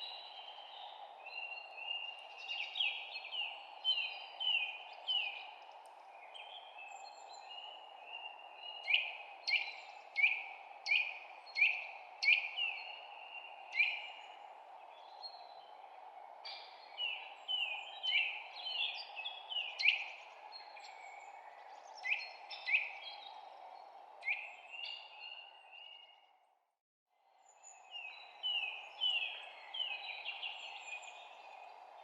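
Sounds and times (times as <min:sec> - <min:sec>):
songbird chirping: 0:27.3 - 0:32.0.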